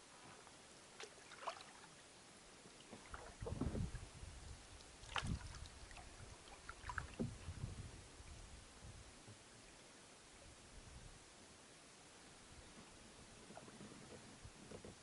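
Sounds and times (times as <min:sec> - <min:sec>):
paddle swishing through water: 0:00.1 - 0:02.0, 0:02.7 - 0:04.1, 0:05.0 - 0:08.4
water drips and splashes: 0:01.0 - 0:01.9, 0:02.8 - 0:04.0, 0:04.7 - 0:07.4.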